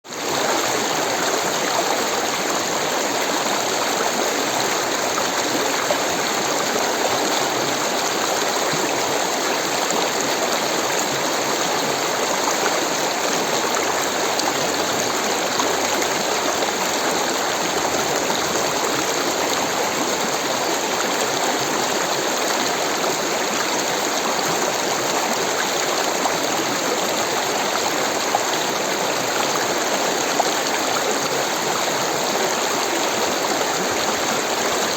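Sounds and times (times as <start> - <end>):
rushing stream water: 0.0 - 34.9.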